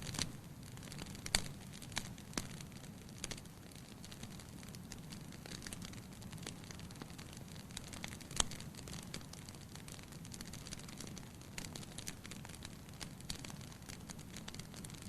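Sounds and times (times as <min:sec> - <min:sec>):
fire rumbling in fireplace: 0:00.0 - 0:15.0
wood crackling and popping: 0:00.0 - 0:15.0.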